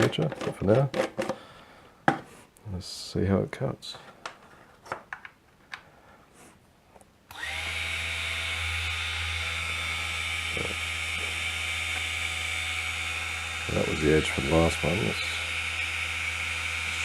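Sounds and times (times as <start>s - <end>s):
drop saw motor running: 7.3s - 17.0s.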